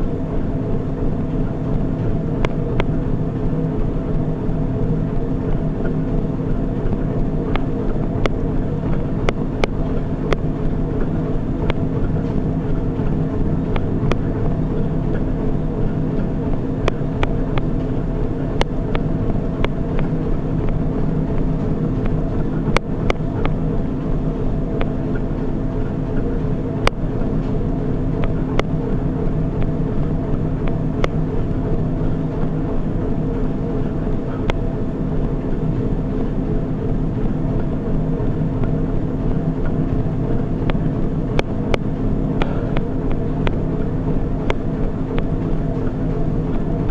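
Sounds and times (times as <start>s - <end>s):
treadmill motor humming: 0.0s - 46.9s.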